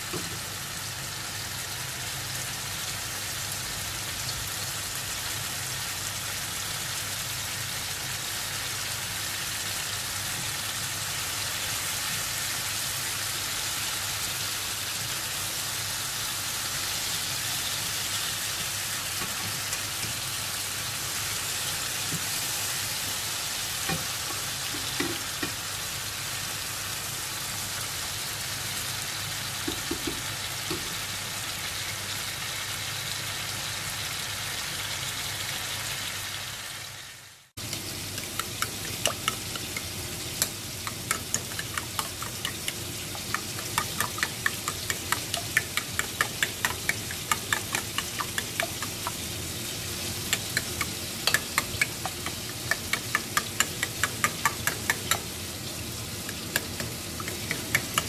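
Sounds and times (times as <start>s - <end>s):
vegetables sizzling in a frying pan: 0.0s - 58.0s
spatula stirring: 37.6s - 58.0s
spoon beating eggs in a bowl: 37.7s - 55.4s, 56.2s - 58.0s.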